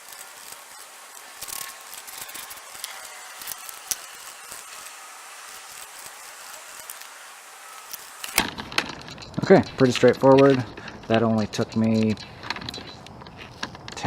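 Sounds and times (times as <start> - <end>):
steady hiss: 0.0 - 14.0
hand tools clicking on metal parts: 7.9 - 14.0.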